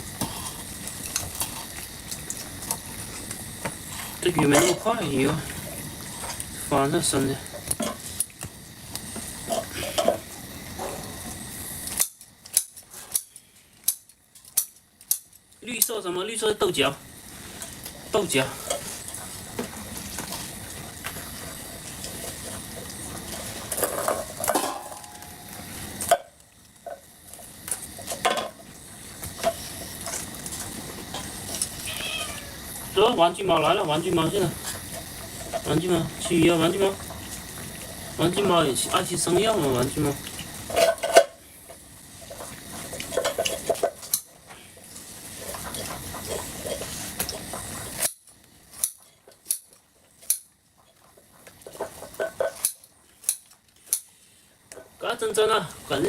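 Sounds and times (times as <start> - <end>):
steady hiss: 0.0 - 56.0
dishes and pots clattering: 23.7 - 25.4, 28.1 - 28.6, 40.7 - 41.4, 51.7 - 52.8.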